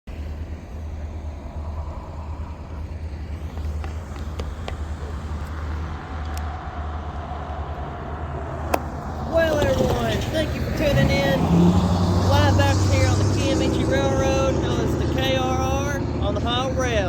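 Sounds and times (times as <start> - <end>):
low vehicle rumble: 0.1 - 17.0.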